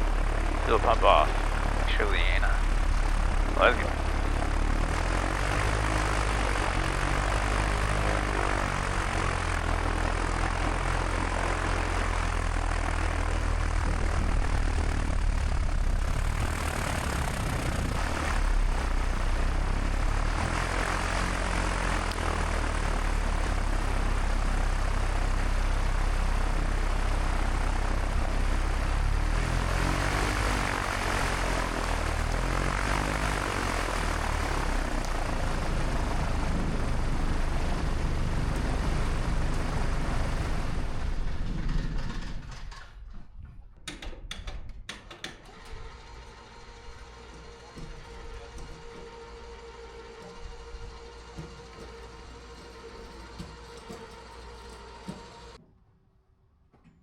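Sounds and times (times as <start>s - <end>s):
constant cabin hiss: 0.0s - 29.3s
airplane engine droning: 0.0s - 43.0s, 45.5s - 55.6s.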